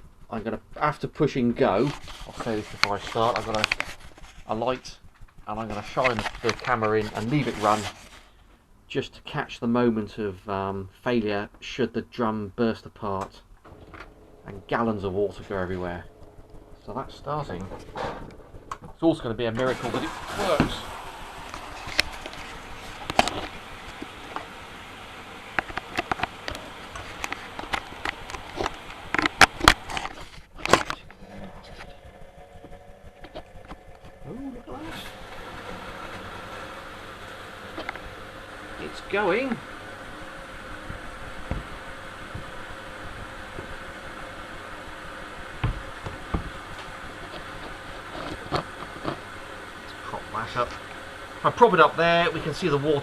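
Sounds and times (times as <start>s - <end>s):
washing machine hiss: 13.7s - 29.8s, 34.3s - 53.0s.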